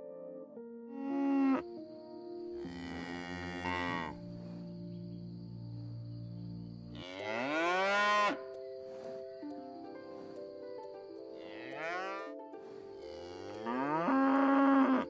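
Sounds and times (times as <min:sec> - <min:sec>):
cow mooing: 0:02.6 - 0:04.2, 0:11.4 - 0:12.4, 0:13.0 - 0:15.0.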